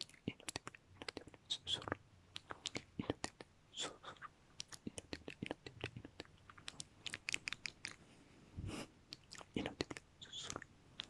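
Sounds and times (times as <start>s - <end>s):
wet mouth clicks and pops: 0.0s - 3.5s, 4.6s - 8.0s, 9.1s - 11.0s
soft breathy hiss: 0.0s - 11.0s.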